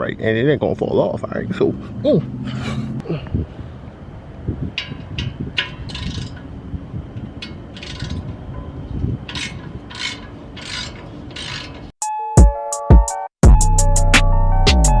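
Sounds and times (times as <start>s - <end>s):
ratchet wrench rasping: 4.8s - 6.5s, 7.3s - 11.9s
music: 12.0s - 15.0s.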